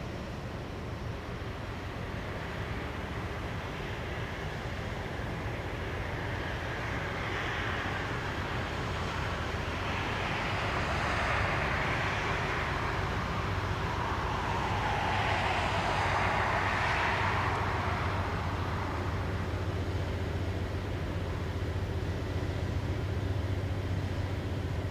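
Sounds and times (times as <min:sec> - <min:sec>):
train rolling past: 0:00.1 - 0:24.9
low hum: 0:08.6 - 0:24.9.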